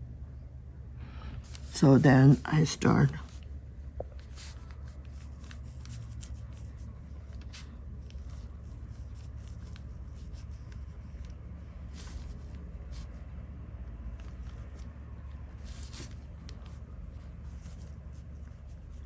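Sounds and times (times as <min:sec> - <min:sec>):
brush stroking across paper: 0:01.4 - 0:13.4, 0:14.2 - 0:19.0.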